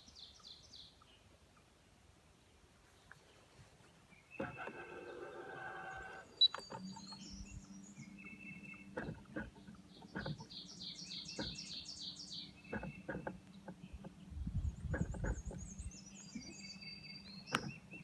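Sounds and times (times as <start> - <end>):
birds chirping and singing: 3.1 - 18.0
steady low hum: 4.2 - 18.0
light clicks: 17.5 - 18.0.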